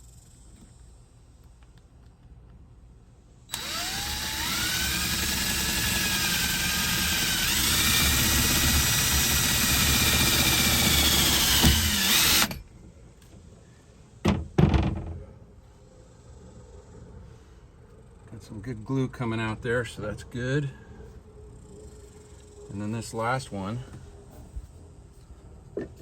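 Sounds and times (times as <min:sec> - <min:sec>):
cordless drill whining: 0:03.5 - 0:12.6.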